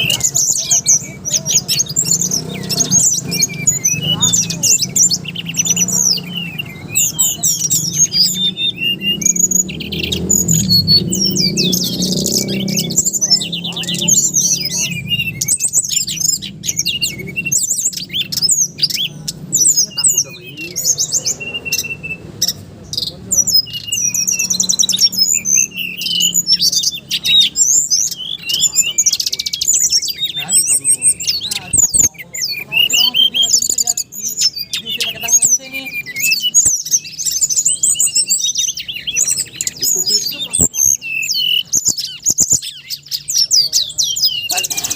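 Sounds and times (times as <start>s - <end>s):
songbird singing: 0.0s - 44.9s.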